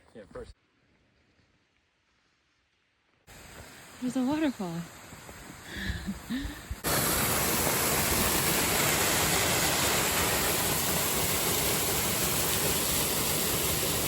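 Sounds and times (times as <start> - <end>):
waterfall rushing: 6.8 - 14.0.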